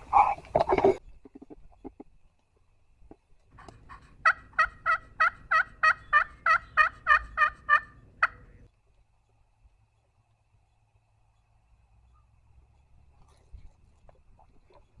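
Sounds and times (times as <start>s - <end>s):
turkey call yelps: 0.0s - 0.4s, 3.6s - 8.5s.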